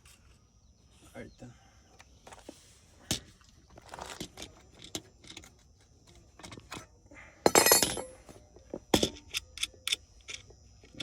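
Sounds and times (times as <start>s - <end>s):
parts being handled clicking: 9.0s - 11.0s.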